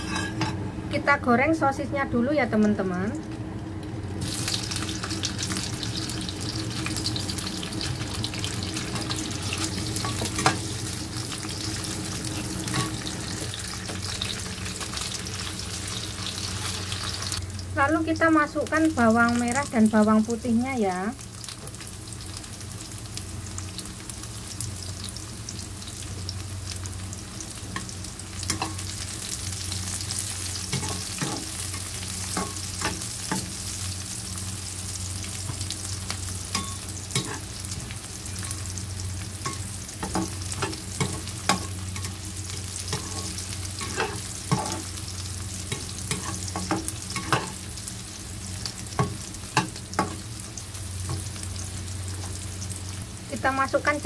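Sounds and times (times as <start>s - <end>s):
metal spatula scraping a pan: 0.0s - 0.6s, 36.6s - 37.5s, 42.9s - 44.9s
food sizzling in hot oil: 0.0s - 54.0s.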